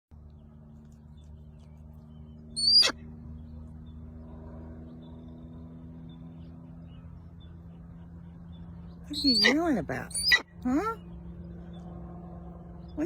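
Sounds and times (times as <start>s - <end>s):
steady low hum: 0.2s - 13.0s
shrill bird call: 2.6s - 3.0s, 9.1s - 10.5s.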